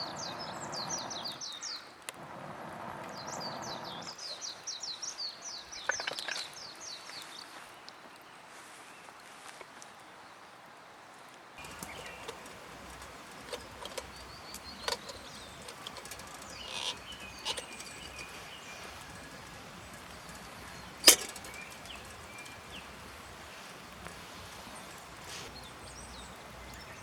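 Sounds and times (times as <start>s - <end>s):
steady outdoor hiss: 0.0s - 27.0s
bird chirps: 11.6s - 27.0s
campfire crackling and popping: 11.6s - 27.0s.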